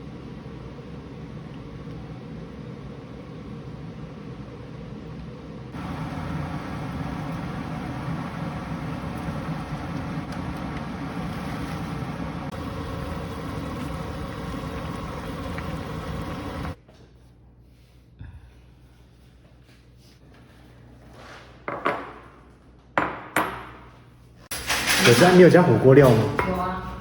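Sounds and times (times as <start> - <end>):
machine whirring: 5.8 - 16.8.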